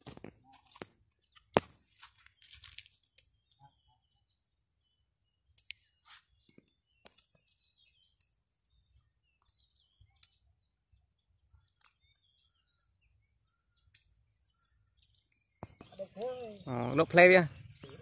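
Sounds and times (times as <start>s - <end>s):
faint bird chirps: 0.4s - 18.0s
sharp clicks: 15.3s - 16.4s.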